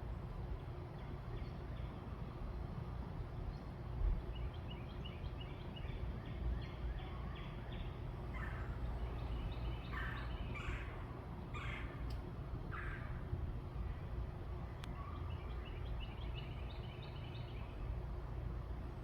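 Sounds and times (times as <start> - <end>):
harsh bird calls: 6.7 - 12.1
steady low rumble: 7.6 - 19.0.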